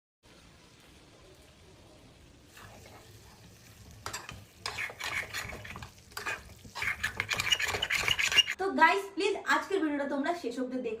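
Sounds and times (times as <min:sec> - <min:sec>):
food frying in hot oil: 0:00.2 - 0:08.6
utensil stirring and scraping: 0:02.5 - 0:08.6.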